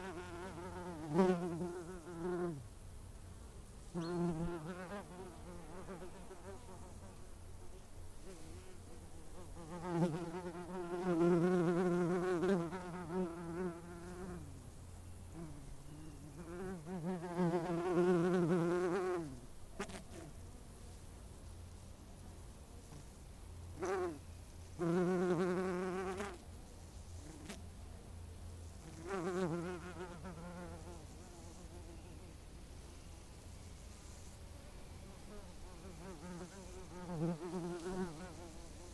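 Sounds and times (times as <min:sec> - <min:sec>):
flying insect buzzing: 0:00.0 - 0:02.8, 0:03.8 - 0:14.6, 0:15.3 - 0:21.1, 0:22.7 - 0:27.6, 0:28.7 - 0:38.9
insect wings buzzing: 0:28.8 - 0:38.9.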